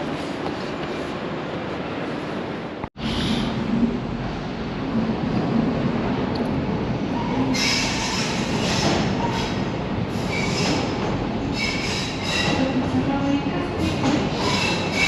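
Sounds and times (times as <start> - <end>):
train running on track: 0.0 - 15.0
metal wheels squealing on rails: 7.2 - 12.6, 14.3 - 15.0.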